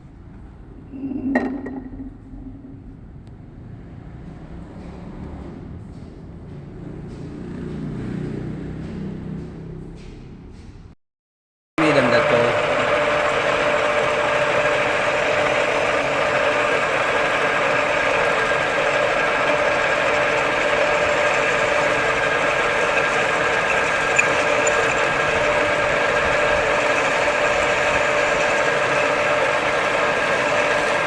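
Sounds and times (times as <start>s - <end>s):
metal lathe running: 11.8s - 31.0s.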